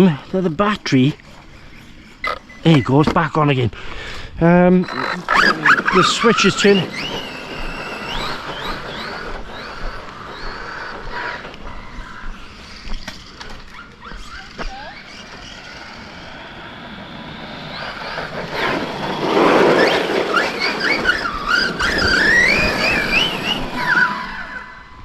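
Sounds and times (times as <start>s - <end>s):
electric motor whine: 4.4s - 25.0s
tyre noise rushing: 4.9s - 15.6s.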